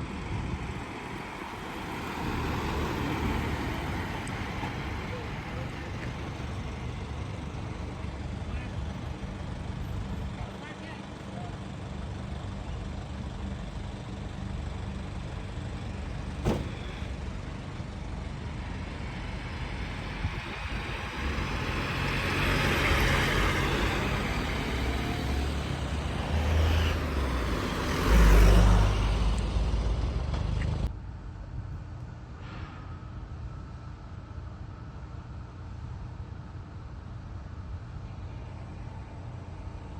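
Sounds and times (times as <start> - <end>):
heavy vehicle passing: 0.0 - 9.8, 18.8 - 30.9
road traffic engine hum: 0.0 - 39.9.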